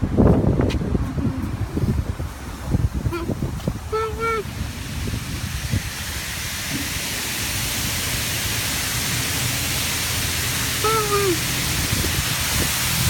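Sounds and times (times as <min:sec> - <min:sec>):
low rumble: 0:00.0 - 0:09.5
water spray hissing: 0:01.4 - 0:13.0.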